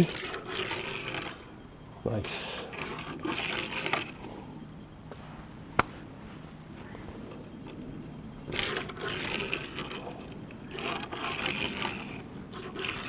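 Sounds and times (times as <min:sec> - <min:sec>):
toy car wheels scraping: 0:00.0 - 0:01.5, 0:02.2 - 0:04.3, 0:08.4 - 0:13.0.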